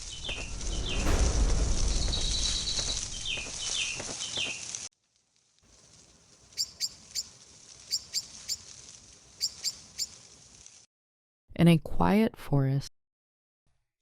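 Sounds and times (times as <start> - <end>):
high bird chirps: 0.0 - 1.0, 6.6 - 7.3, 7.9 - 8.6, 9.4 - 10.2
loud noise with falling chirps: 0.0 - 4.7, 6.5 - 8.7, 9.4 - 10.2
forest ambience: 0.0 - 10.9.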